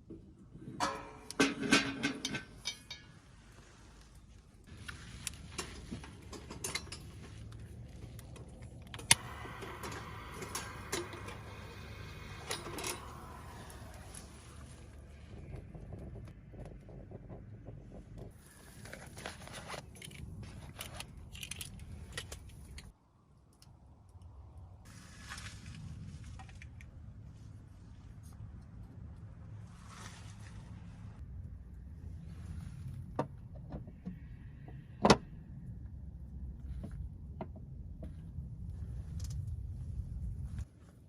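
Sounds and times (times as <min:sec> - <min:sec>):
steady low rumble: 0:02.4 - 0:22.9, 0:23.8 - 0:41.0
sharp clicks and crackles: 0:04.0 - 0:24.4.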